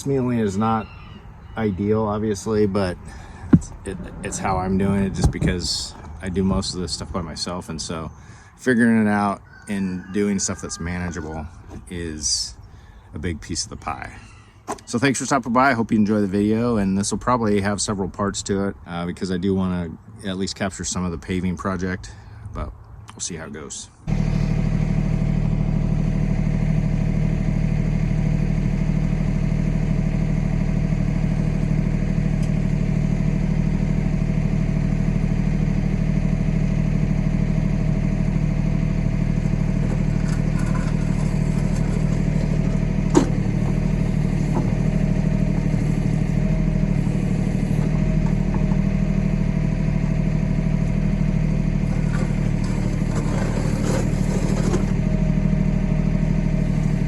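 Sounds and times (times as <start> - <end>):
diesel tractor engine running: 0.0 - 9.4, 24.0 - 57.0.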